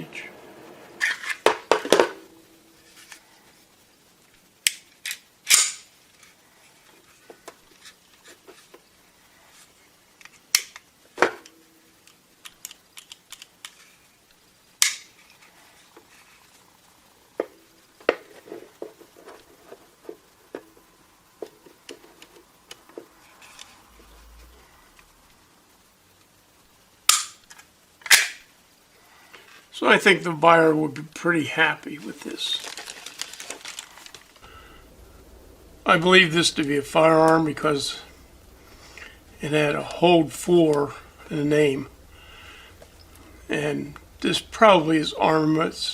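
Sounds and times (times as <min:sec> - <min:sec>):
pistol parts clicking and clacking: 0:04.7 - 0:05.8, 0:14.8 - 0:15.1, 0:27.1 - 0:27.4, 0:28.0 - 0:28.4.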